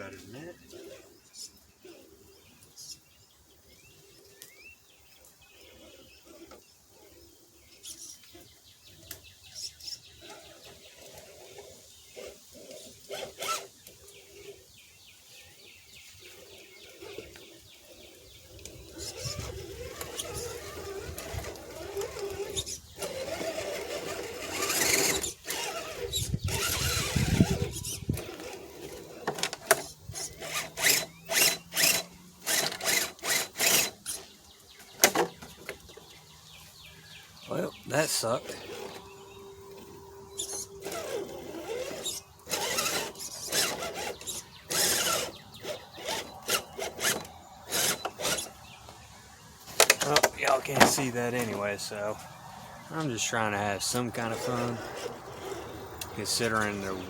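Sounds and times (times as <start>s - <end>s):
electric motor and gears whining: 5.5s - 57.0s.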